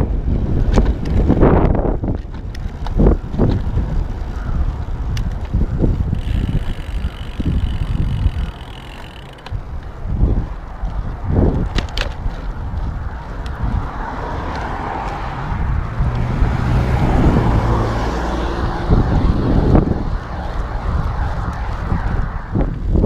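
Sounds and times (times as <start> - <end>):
road and wind noise: 0.0 - 23.0
vehicle passing: 5.8 - 11.5, 12.4 - 23.0.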